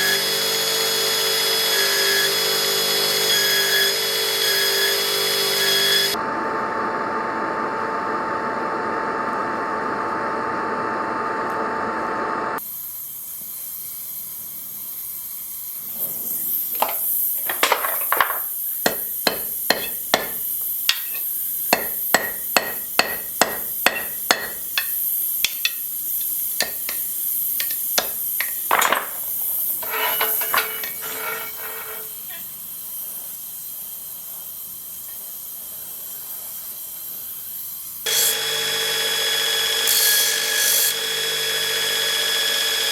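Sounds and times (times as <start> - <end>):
hammer striking steel on anvil: 16.8 - 32.1.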